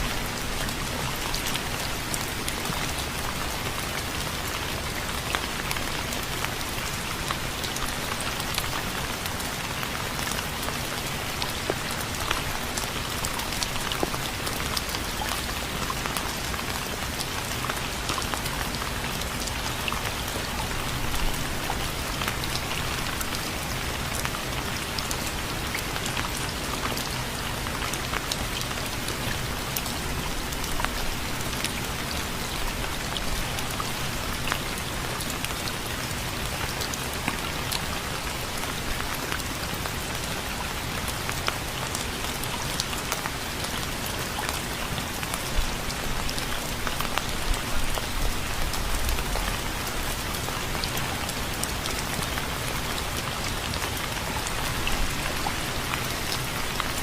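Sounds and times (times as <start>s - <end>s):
rain falling: 0.0s - 57.0s
raindrops ticking on a surface: 0.0s - 57.0s.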